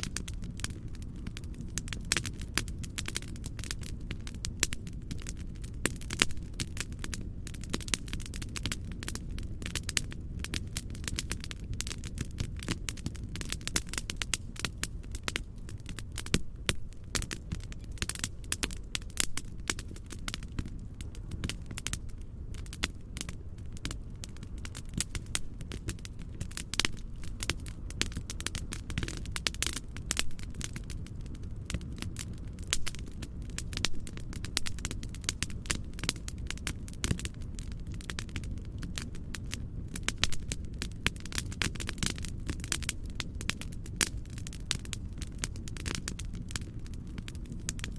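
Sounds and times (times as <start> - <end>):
wood fire crackling and popping: 0.0 - 47.9.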